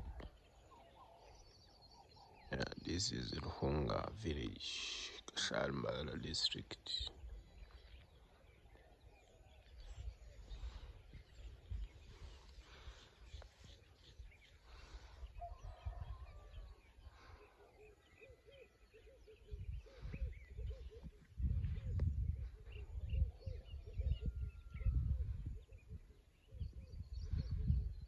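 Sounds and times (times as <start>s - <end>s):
faint bird calls: 0.0s - 28.0s.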